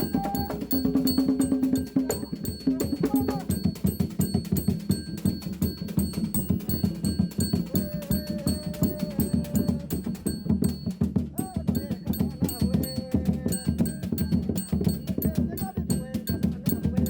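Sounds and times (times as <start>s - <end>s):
person singing long notes: 0.0s - 0.8s, 7.7s - 10.2s
drums playing fast rhythm: 0.0s - 17.0s.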